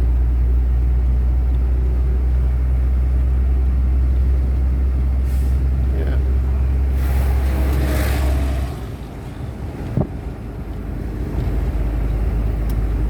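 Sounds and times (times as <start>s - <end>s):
diesel lorry engine drone: 0.0s - 13.0s
road noise: 0.0s - 13.0s.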